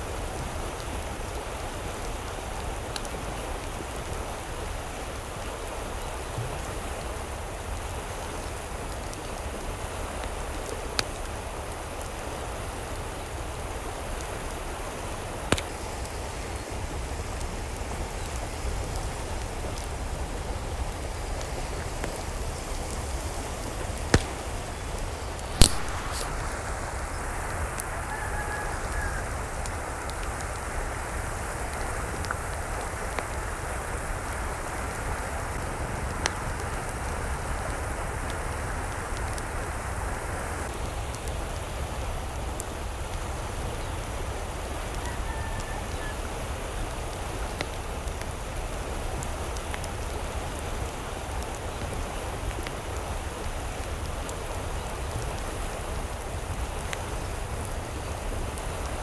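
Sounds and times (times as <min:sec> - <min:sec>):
water hissing: 0:21.3 - 0:29.2.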